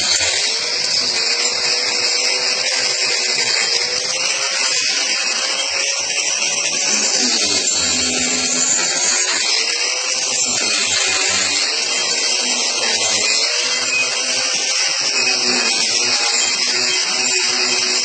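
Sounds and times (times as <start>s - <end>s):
angle grinder cutting wood: 0.0s - 18.0s.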